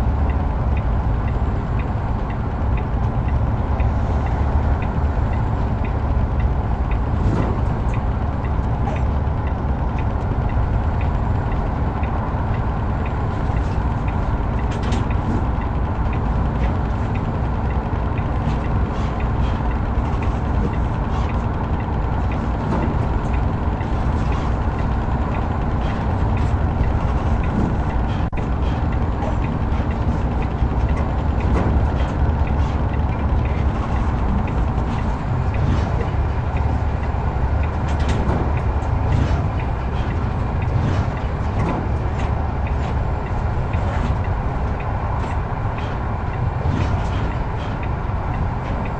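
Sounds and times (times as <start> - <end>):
truck engine and road noise: 0.0 - 48.9.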